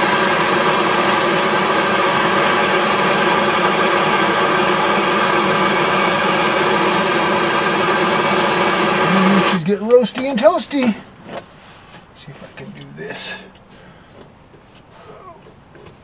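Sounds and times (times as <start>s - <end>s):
electric tool whirring: 0.0s - 9.7s.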